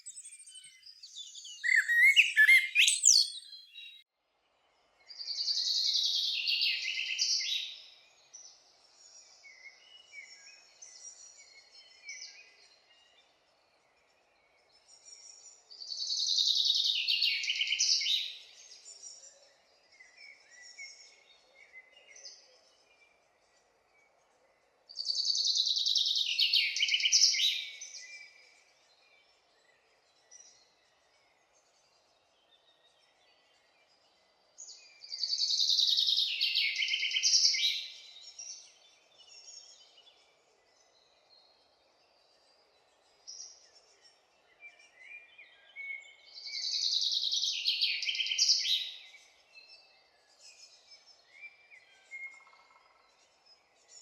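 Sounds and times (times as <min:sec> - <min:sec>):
bird chirps: 0:00.0 - 0:04.0
songbird singing: 0:00.0 - 0:54.0.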